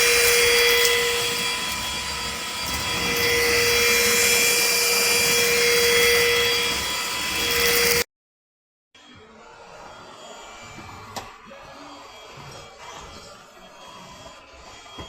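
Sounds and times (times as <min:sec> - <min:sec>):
stick vacuum cleaner running: 0:00.0 - 0:08.0.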